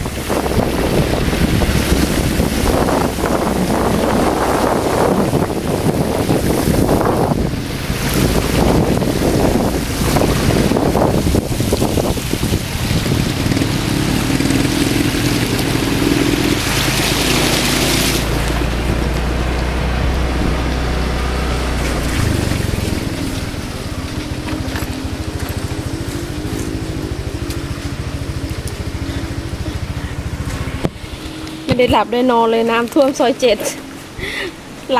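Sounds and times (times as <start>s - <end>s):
motor vehicle engine running: 0.0s - 34.9s.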